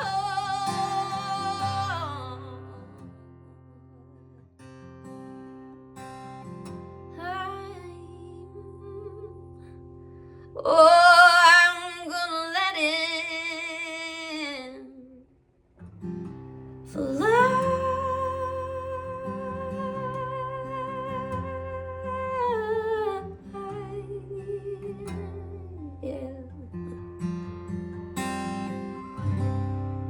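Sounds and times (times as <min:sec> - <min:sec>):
woman singing with vibrato: 0:00.0 - 0:03.2, 0:07.2 - 0:09.5, 0:10.6 - 0:15.2, 0:16.9 - 0:26.8
acoustic guitar: 0:00.0 - 0:30.0.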